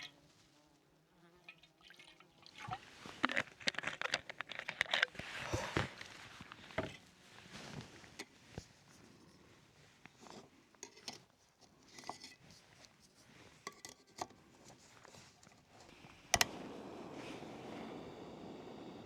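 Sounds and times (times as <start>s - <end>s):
stove burner hissing: 15.8s - 19.0s.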